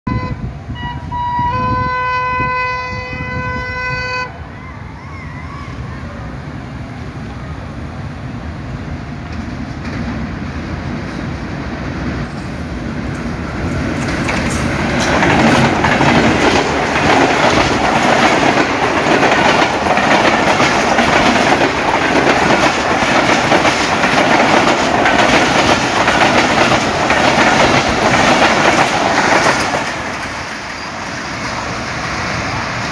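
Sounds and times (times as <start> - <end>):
train wheels clattering over rails: 9.2 - 32.9.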